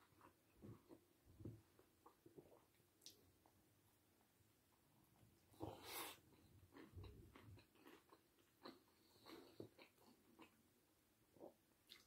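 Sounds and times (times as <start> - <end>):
person chewing food: 0.0 - 3.6, 5.4 - 10.6, 11.3 - 12.0.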